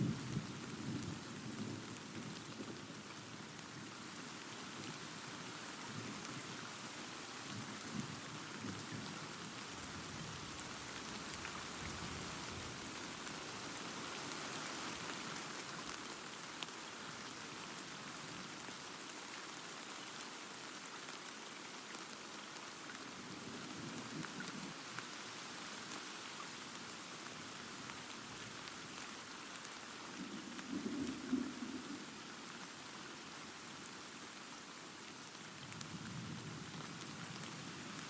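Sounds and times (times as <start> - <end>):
heavy rain pattering: 0.0 - 38.0
low thunder rumble: 30.2 - 32.2.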